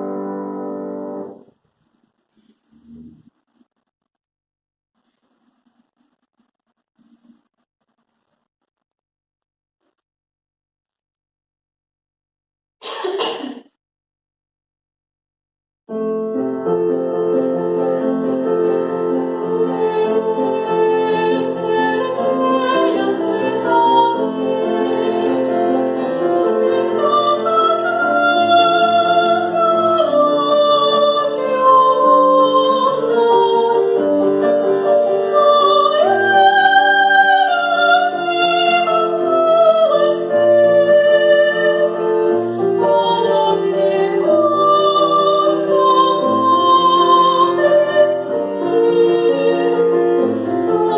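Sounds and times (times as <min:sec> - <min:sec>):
piano accompaniment: 0:00.0 - 0:01.5, 0:15.9 - 0:50.9
woman singing opera: 0:19.4 - 0:34.4, 0:35.1 - 0:42.0, 0:42.7 - 0:50.9.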